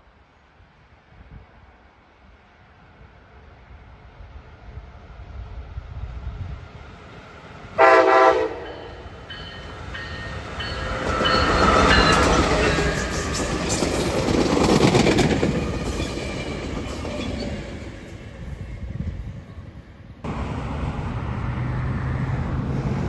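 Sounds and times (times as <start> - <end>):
train passing: 0.0 - 23.0
train horn blast: 7.8 - 9.1.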